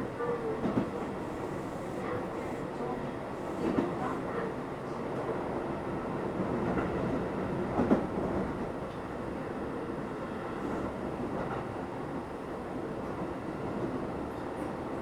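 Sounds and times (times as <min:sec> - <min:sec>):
train wheels rumbling on rail: 0:00.0 - 0:05.5, 0:06.1 - 0:09.2.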